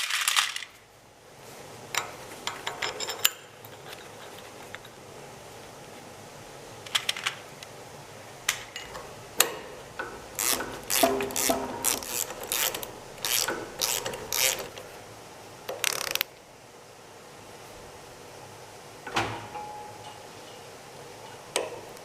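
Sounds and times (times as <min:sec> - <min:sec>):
ratchet wrench clicking: 0:10.4 - 0:14.8, 0:15.8 - 0:16.3.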